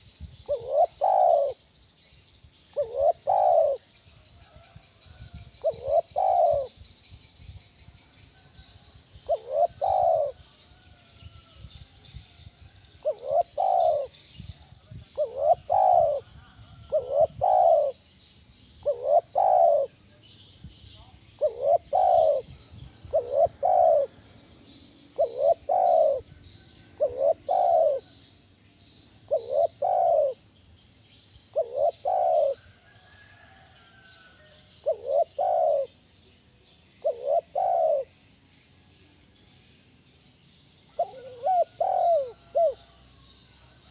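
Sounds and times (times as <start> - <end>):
dove cooing: 0.0 - 1.6, 2.7 - 3.9, 5.6 - 6.8, 9.2 - 10.5, 13.0 - 14.3, 15.1 - 18.0, 18.8 - 20.0, 21.3 - 24.4, 25.1 - 28.1, 29.3 - 30.5, 31.5 - 33.4, 34.4 - 36.0, 37.0 - 38.1, 40.9 - 43.0
small birds chirping: 0.0 - 43.9.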